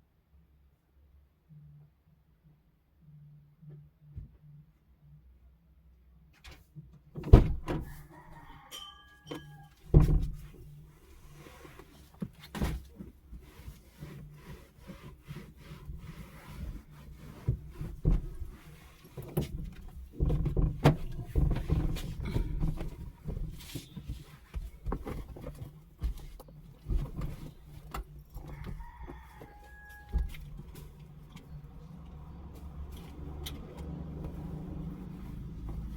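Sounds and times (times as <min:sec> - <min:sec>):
knocks and clatter of handling: 0:07.2 - 0:13.4, 0:16.7 - 0:35.9.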